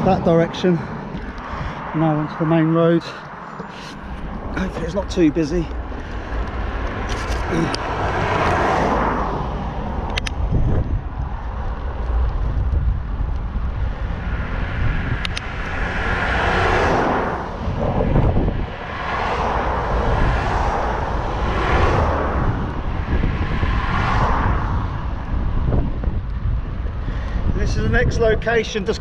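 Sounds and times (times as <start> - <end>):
vehicles passing: 0.0 - 29.0
wind on microphone: 3.5 - 29.0.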